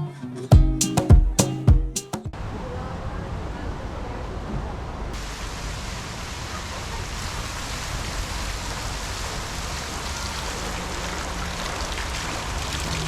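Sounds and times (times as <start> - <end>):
bright hiss: 5.2 - 10.8.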